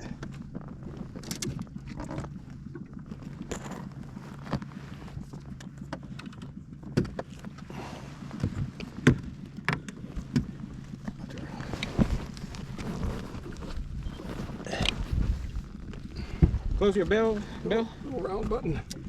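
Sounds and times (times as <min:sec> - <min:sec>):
knocks and thumps in a boat: 0:00.0 - 0:19.0
steady low hum: 0:00.0 - 0:19.0.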